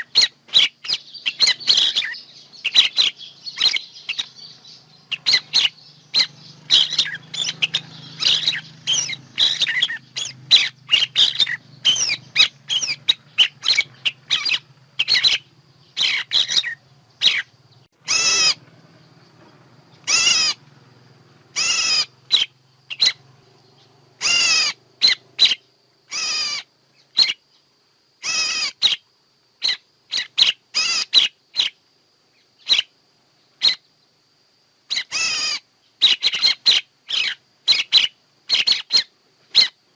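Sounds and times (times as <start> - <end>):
songbird chirps and calls: 0.0 - 39.9.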